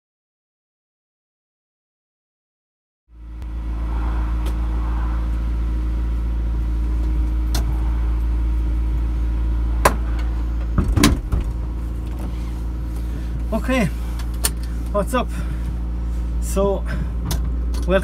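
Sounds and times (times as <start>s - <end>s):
car engine idling: 3.1s - 18.0s.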